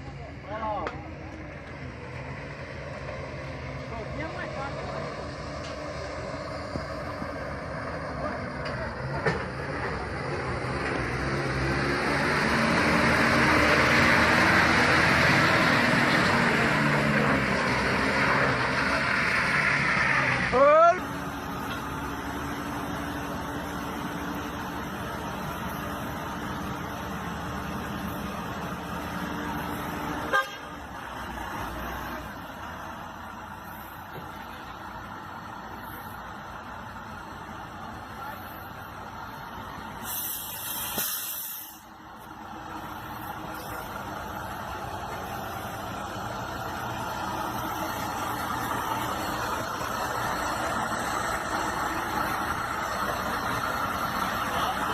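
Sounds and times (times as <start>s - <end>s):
truck engine under load: 0.0s - 54.9s
truck horn toot: 30.2s - 30.8s.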